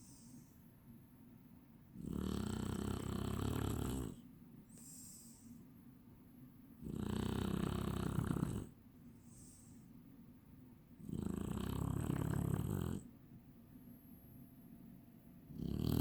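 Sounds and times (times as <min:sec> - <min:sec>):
breathy hiss: 0:00.0 - 0:00.7, 0:04.0 - 0:05.7, 0:07.8 - 0:10.0
dog snoring: 0:02.0 - 0:04.2, 0:06.8 - 0:09.7, 0:11.0 - 0:13.1, 0:15.5 - 0:16.0.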